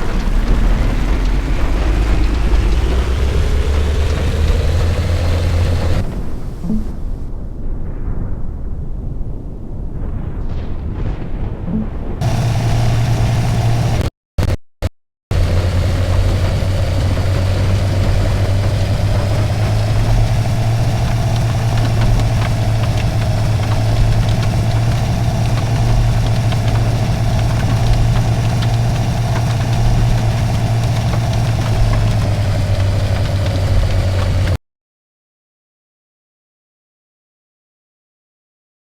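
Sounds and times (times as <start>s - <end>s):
car engine running: 0.0s - 6.1s, 12.2s - 14.6s, 15.3s - 34.6s.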